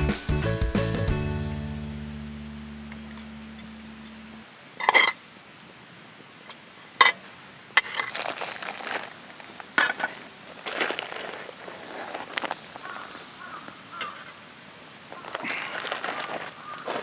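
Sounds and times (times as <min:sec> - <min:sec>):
metal cookware clinking and clattering: 0:04.8 - 0:05.2.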